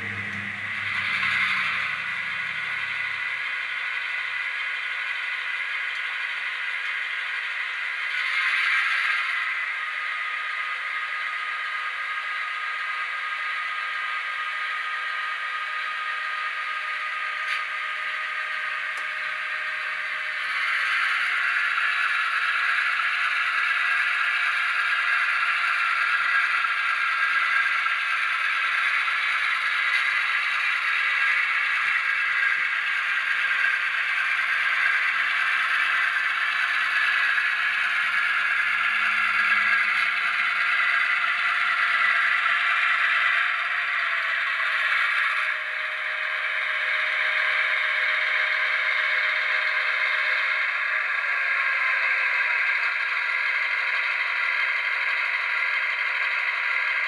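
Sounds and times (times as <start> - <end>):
diesel engine through small speaker: 0.0 - 57.0.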